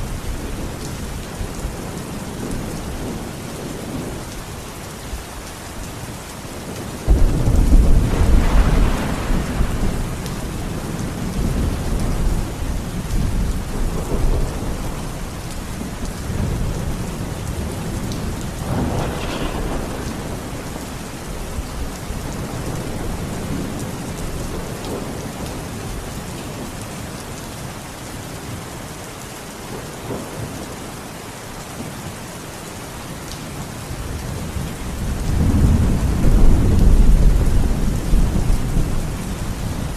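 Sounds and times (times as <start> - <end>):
steady rain: 0.0 - 39.9
rolling thunder: 7.0 - 25.8, 34.1 - 39.9
sudden thunderclap: 7.1 - 10.3, 18.1 - 21.1.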